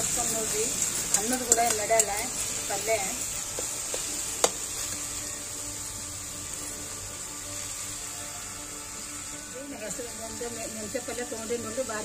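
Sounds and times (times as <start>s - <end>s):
vegetables sizzling in oil: 0.0s - 12.0s
spatula clacking against pan: 1.1s - 2.2s, 3.5s - 4.7s.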